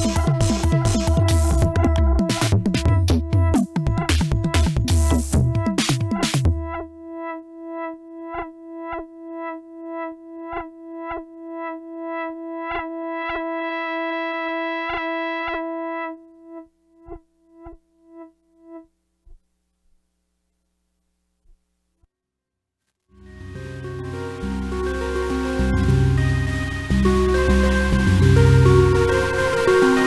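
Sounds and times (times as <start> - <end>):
clicks and low thumps: 0.0 - 7.0
pulsing synthesizer drone: 0.0 - 16.0, 23.2 - 30.0.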